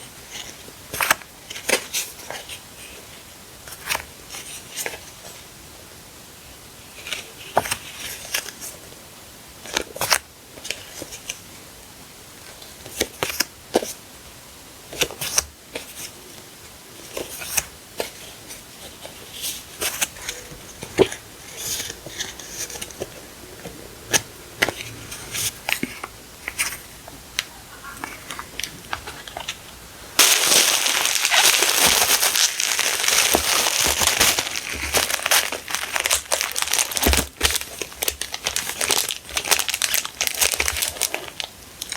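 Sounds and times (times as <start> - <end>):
packaging crinkling and crumpling: 27.9 - 41.9
packaging rustling and tapping: 28.0 - 41.9.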